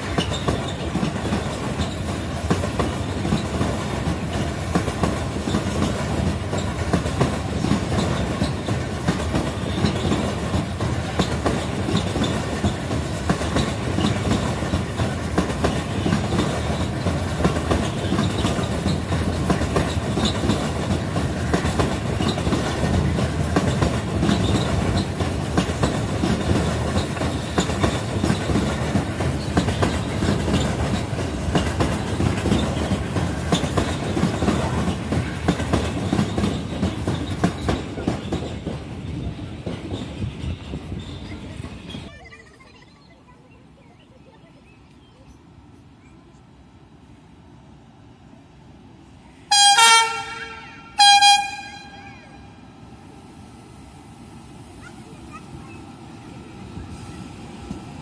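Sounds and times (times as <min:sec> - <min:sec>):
train wheels clattering over rail joints: 0:00.0 - 0:42.1.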